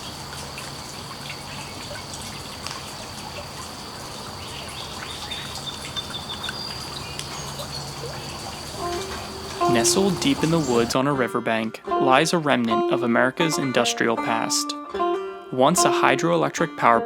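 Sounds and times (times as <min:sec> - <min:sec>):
water trickling and dripping: 0:00.0 - 0:10.9
bird chirps: 0:04.1 - 0:10.9
thin high-pitched tone: 0:08.8 - 0:10.9.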